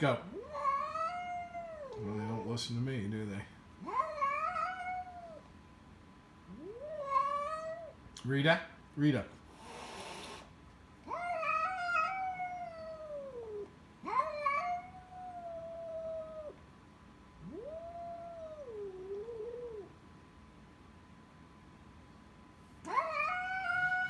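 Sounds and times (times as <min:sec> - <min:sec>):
cat yowling: 0:00.2 - 0:02.5, 0:03.8 - 0:05.5, 0:06.5 - 0:08.0, 0:11.0 - 0:16.6, 0:17.4 - 0:20.0, 0:22.8 - 0:24.0.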